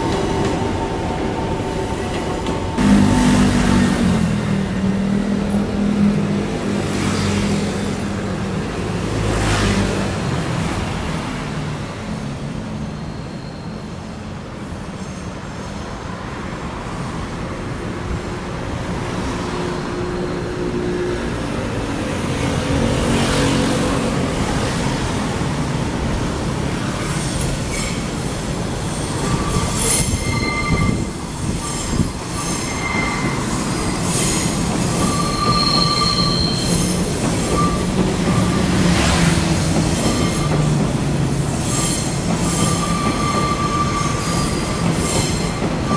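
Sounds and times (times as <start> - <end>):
train wheels rumbling on rails: 0.0 - 13.2, 14.4 - 45.9
train wheel squeal: 12.8 - 14.2, 14.8 - 16.0, 27.0 - 45.9.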